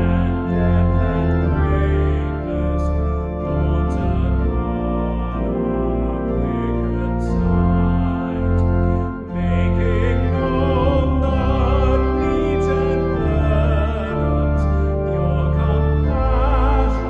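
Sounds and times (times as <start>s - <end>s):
organ accompaniment: 0.0s - 17.0s
person singing with vibrato: 6.0s - 17.0s.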